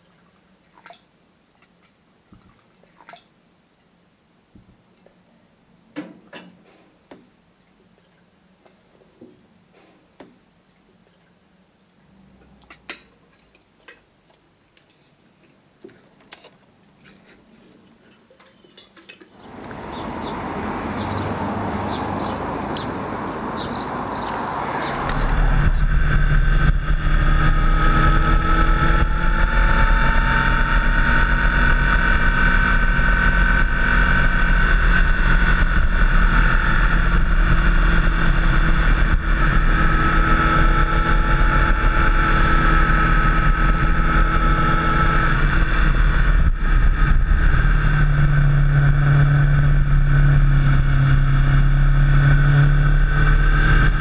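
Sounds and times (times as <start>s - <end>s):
wind and road noise: 19.3s - 54.0s
motorcycle engine cruising: 19.4s - 54.0s.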